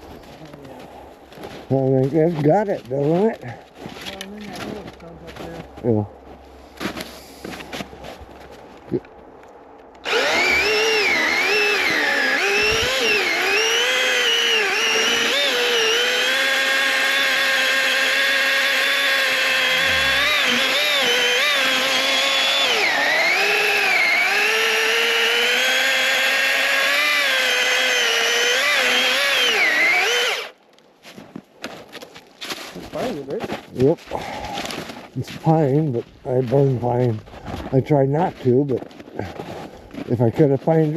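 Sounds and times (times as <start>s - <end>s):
electric chainsaw cutting wood: 10.0s - 30.6s.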